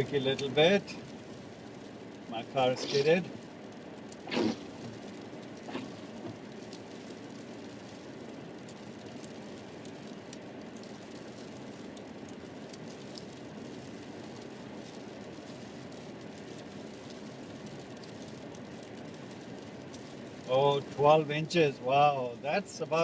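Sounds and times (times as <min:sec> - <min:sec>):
road and tyre noise in car: 0:00.0 - 0:23.0
faint ticks: 0:03.0 - 0:20.6.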